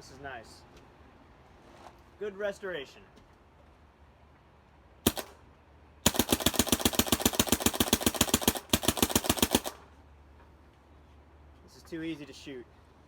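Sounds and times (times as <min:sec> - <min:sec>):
paintball marker firing: 0:05.1 - 0:05.4, 0:06.0 - 0:09.8.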